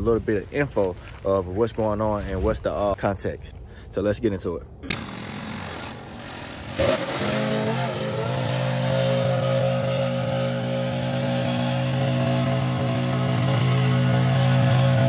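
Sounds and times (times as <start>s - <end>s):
small gasoline engine running: 4.9s - 15.0s.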